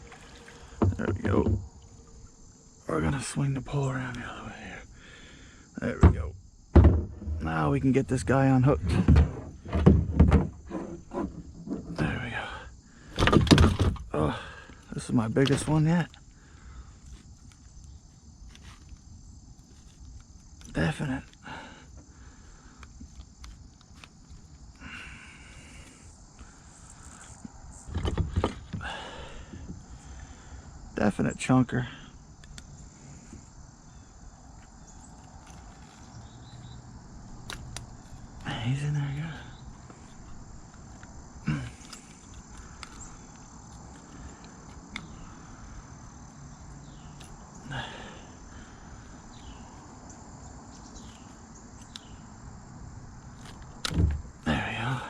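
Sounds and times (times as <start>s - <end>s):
knocks and rubbing in kayak: 0.0s - 2.1s, 5.9s - 7.6s, 8.7s - 12.2s, 13.2s - 14.1s, 27.8s - 29.8s
insect buzzing: 0.0s - 31.2s, 32.1s - 55.0s
rustle: 14.8s - 21.4s, 32.3s - 55.0s.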